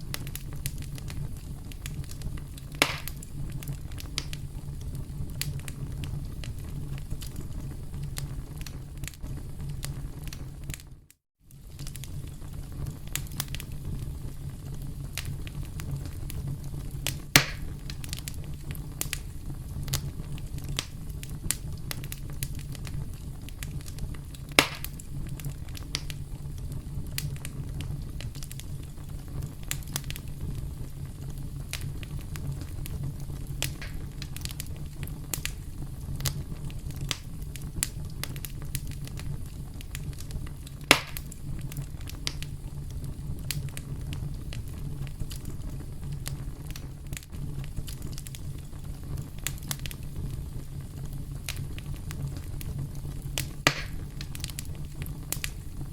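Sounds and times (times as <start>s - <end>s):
sharp fire pops: 0.0s - 55.9s
wood fire crackling: 0.0s - 55.9s.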